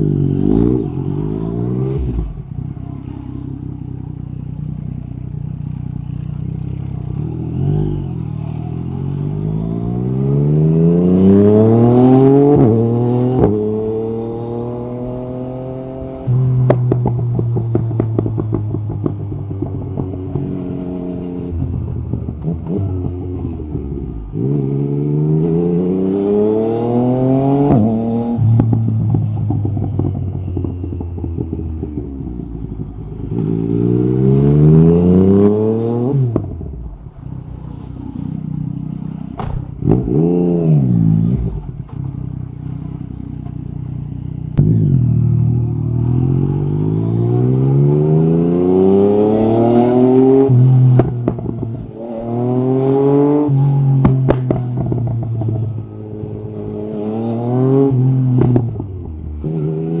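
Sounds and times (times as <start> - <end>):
motorcycle engine revving: 0.0 - 60.0
exhaust pops and crackles: 39.4 - 40.1, 54.0 - 55.6.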